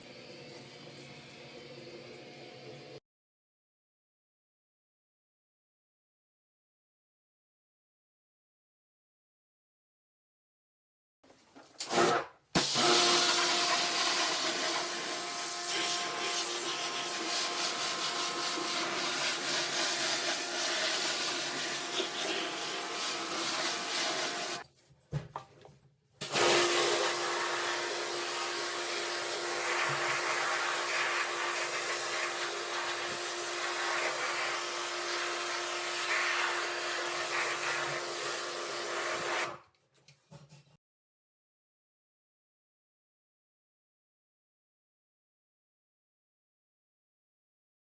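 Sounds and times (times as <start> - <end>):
pressure washer motor hum: 12.6 - 24.6, 26.2 - 38.9
pressure washer spray hiss: 12.9 - 24.6, 26.3 - 35.3.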